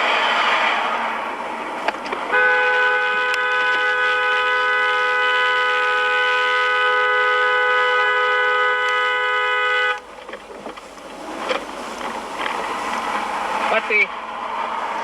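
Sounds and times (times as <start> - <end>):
car horn long blast: 2.3 - 10.1.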